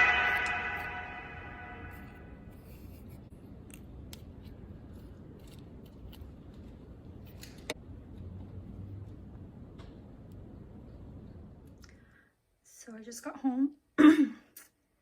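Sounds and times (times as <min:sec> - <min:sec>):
background music: 0:00.0 - 0:02.2
low room hum: 0:00.0 - 0:14.1.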